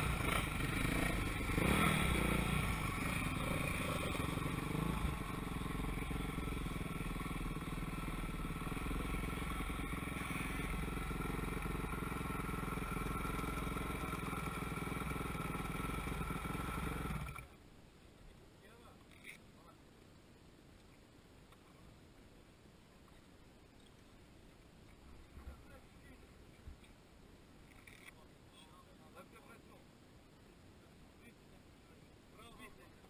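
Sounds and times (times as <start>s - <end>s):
motorcycle engines running: 0.0s - 17.6s.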